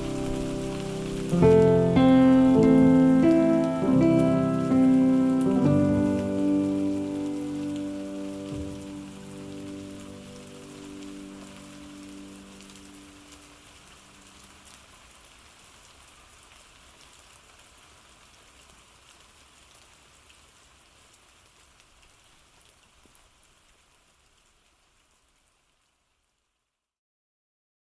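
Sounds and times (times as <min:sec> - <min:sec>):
raindrop hits: 0:00.0 - 0:13.8
steady rain falling: 0:00.0 - 0:26.8.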